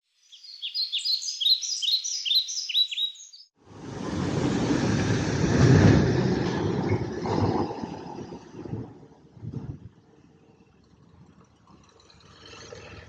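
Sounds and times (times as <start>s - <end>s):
small bird chirping: 0.1s - 3.5s
low rushing rumble: 3.6s - 11.4s.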